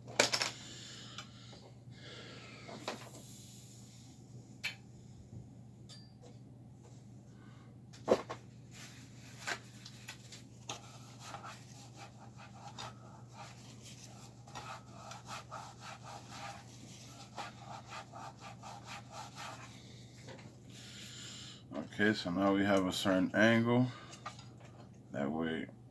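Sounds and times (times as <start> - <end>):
low steady hum: 0.0 - 25.9
rubbing and scratching strokes: 8.7 - 20.6.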